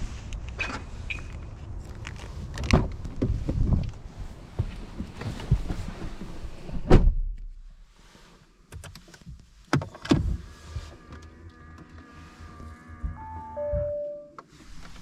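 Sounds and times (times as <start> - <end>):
knocks and rustling at car: 2.5 - 7.5
faint steady tones: 12.2 - 14.5.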